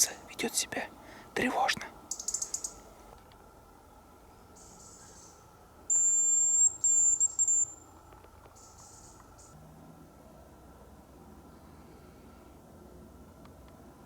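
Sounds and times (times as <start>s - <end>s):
faint high chirps: 2.1s - 2.8s, 4.5s - 8.0s
high decoy whistle: 5.9s - 7.8s.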